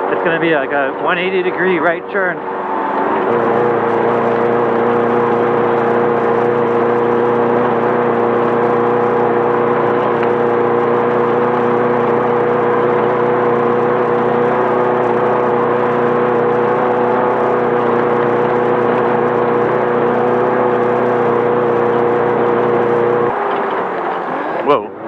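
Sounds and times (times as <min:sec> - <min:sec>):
race car engine at steady revs: 0:00.0 - 0:25.0.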